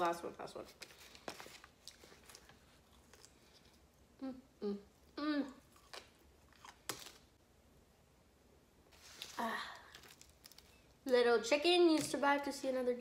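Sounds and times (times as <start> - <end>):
person humming mm: 4.2 - 5.6
person biting and chewing: 5.6 - 7.3.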